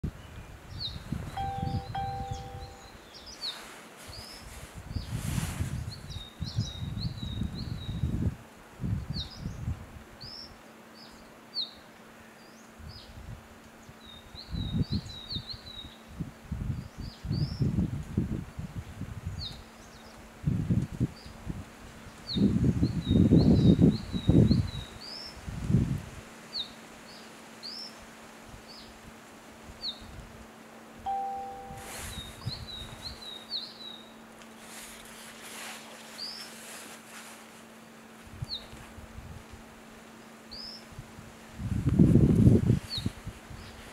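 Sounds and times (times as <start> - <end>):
bird chirping: 0.8 - 3.6, 31.1 - 34.1
brief low tone: 1.3 - 2.9, 31.1 - 32.4.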